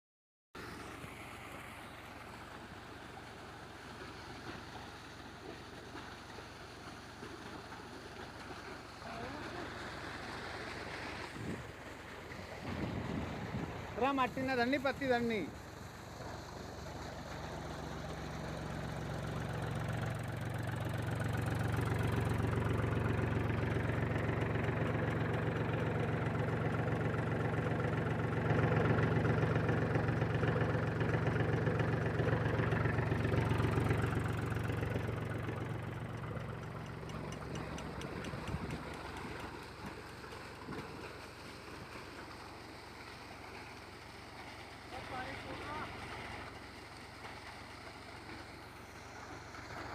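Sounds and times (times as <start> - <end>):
tractor engine running: 15.5 - 49.9.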